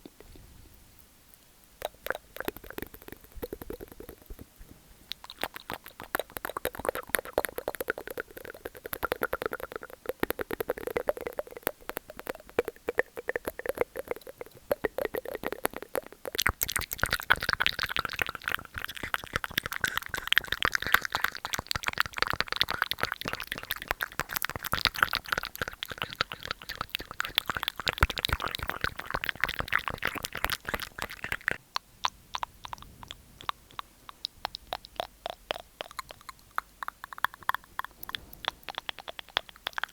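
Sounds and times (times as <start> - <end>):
wet mouth sounds: 0.0 - 39.9.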